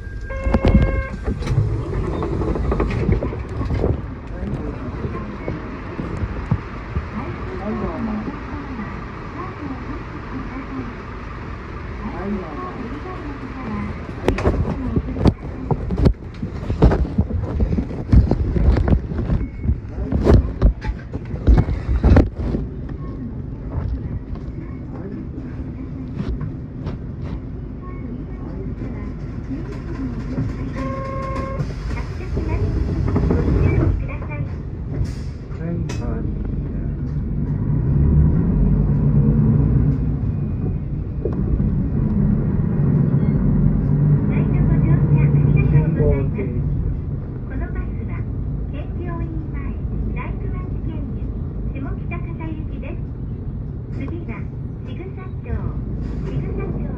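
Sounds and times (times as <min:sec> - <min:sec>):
knocks and rattles of bus body: 0:00.0 - 0:07.4, 0:13.7 - 0:27.8, 0:28.7 - 0:45.4
bus engine and road rumble: 0:00.0 - 0:56.9.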